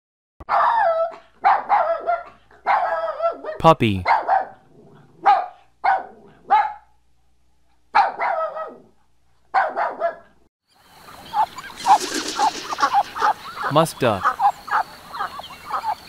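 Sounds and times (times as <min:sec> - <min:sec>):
puppy yapping: 0:00.5 - 0:04.6, 0:05.2 - 0:06.8, 0:08.0 - 0:08.9, 0:09.6 - 0:10.3
ducks calling: 0:10.9 - 0:16.0.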